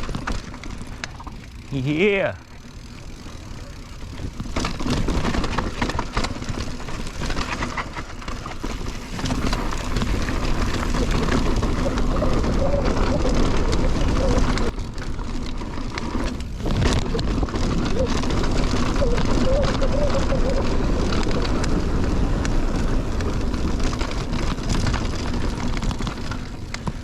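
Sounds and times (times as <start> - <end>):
bike rattling over bumps: 0.0 - 27.0
bike tyres crunching gravel: 0.0 - 27.0.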